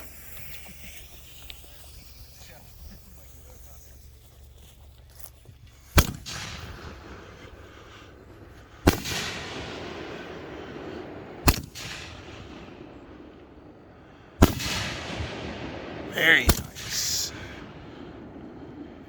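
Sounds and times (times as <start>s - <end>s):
firework cake loud bangs: 6.0s - 7.8s, 8.6s - 19.0s.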